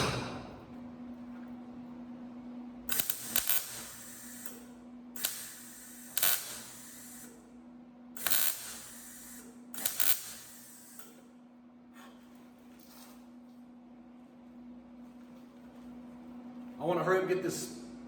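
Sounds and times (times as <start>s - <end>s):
steady low hum: 0.0s - 18.0s
welder crackling bursts: 2.9s - 7.4s, 8.2s - 11.2s.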